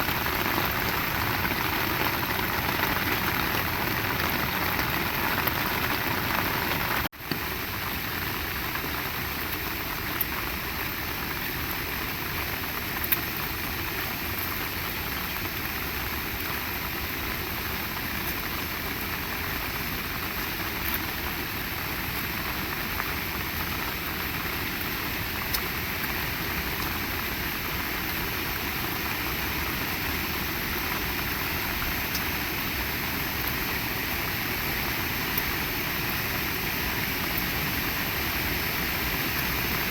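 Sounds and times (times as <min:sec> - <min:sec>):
raindrops ticking: 0:00.0 - 0:08.0, 0:20.5 - 0:21.3
heavy rain hissing: 0:00.0 - 0:39.9.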